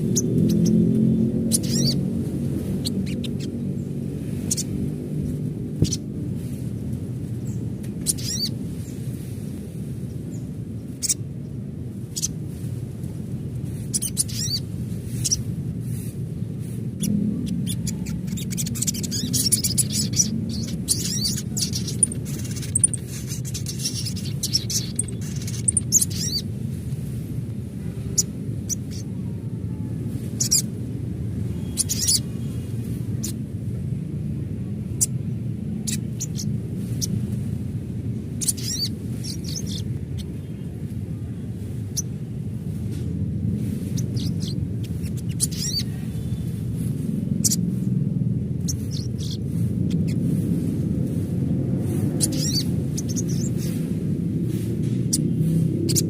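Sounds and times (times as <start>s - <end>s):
bird chirping and trilling: 0.0s - 6.1s, 7.4s - 8.9s, 10.3s - 11.3s, 12.0s - 12.4s, 13.7s - 26.6s, 28.0s - 29.3s, 30.2s - 30.7s, 31.5s - 33.4s, 34.9s - 37.2s, 38.2s - 42.2s, 43.6s - 47.8s, 48.6s - 50.5s, 51.9s - 53.9s, 54.5s - 56.0s
low outdoor rumble: 0.0s - 56.0s.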